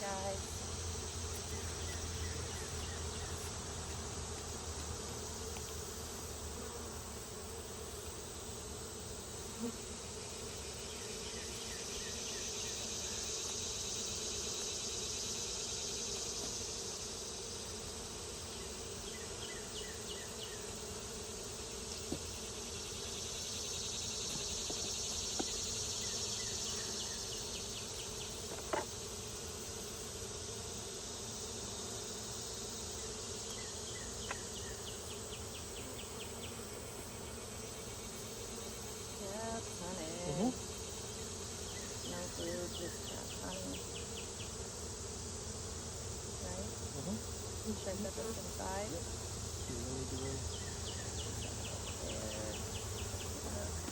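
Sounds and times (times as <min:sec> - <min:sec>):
high-pitched insect hiss: 0:00.0 - 0:53.9
honeybees buzzing: 0:00.0 - 0:53.9
faint clicks from hive handling: 0:03.4 - 0:05.8, 0:07.9 - 0:08.2, 0:24.2 - 0:25.6, 0:28.4 - 0:29.0, 0:33.4 - 0:34.6.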